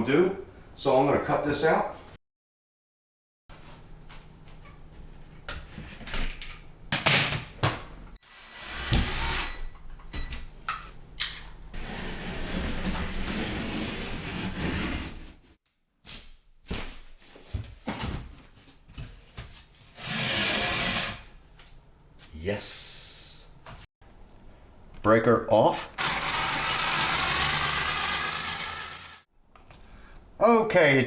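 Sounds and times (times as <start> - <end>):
drywall cutting: 8.2 - 9.7, 11.7 - 15.4, 19.9 - 21.4, 25.9 - 29.3.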